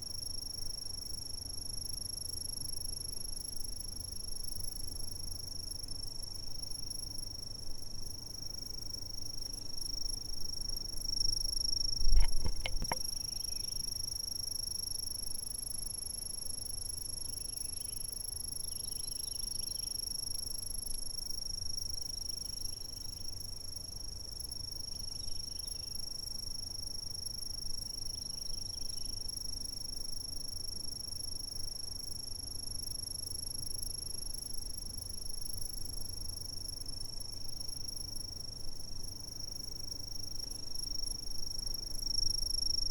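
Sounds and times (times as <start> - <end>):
faint insect chirps: 0.0 - 42.9
insect high-pitched trill: 0.0 - 42.9
low thump with clicks: 12.0 - 13.0.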